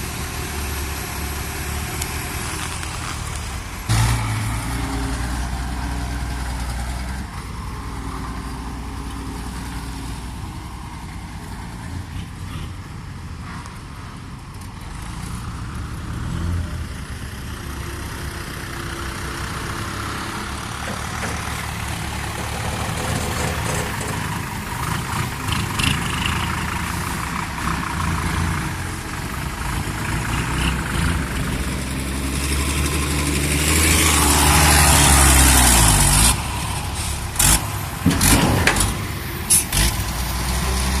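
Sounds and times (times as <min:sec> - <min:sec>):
dump truck engine revving: 0:00.0 - 0:13.7, 0:14.7 - 0:41.0
sharp knocks and bangs: 0:37.4 - 0:40.2.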